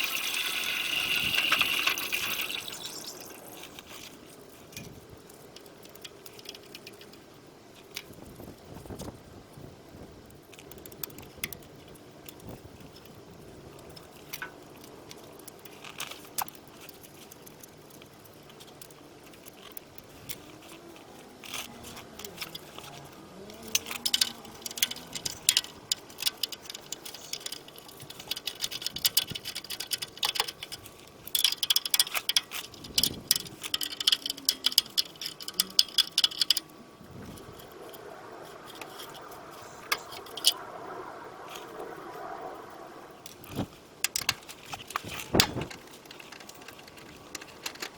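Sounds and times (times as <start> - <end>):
hand tools clicking and rattling: 0.0 - 7.2, 13.8 - 38.0, 38.6 - 40.6, 43.3 - 47.9.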